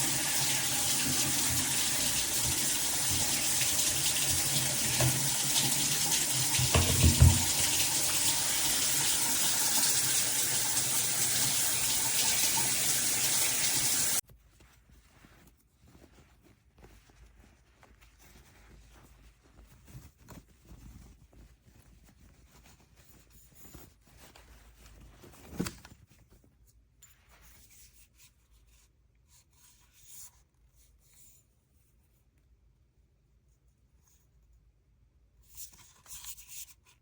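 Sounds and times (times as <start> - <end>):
short knock: 6.6 - 7.6
faint rubbing and handling noises: 14.2 - 37.0.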